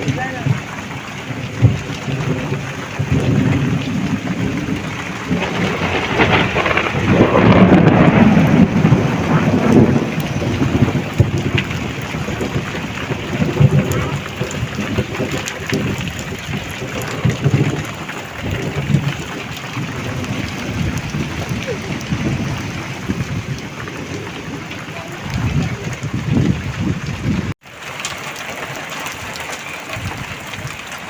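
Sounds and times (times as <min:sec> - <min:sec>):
low rumbles: 0:00.0 - 0:27.6
heavy rain falling: 0:00.0 - 0:31.0.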